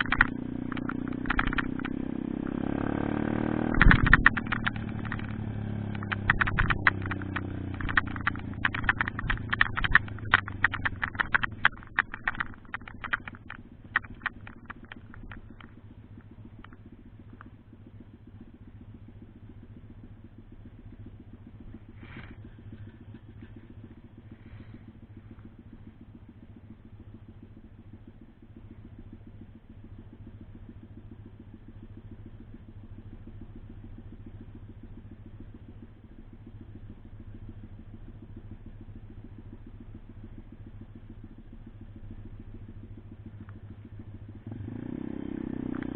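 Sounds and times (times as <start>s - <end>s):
sharp clattering clicks: 0.0s - 2.2s, 2.9s - 17.6s, 21.6s - 26.8s, 36.4s - 45.9s
small motorbike engine running: 0.0s - 45.9s.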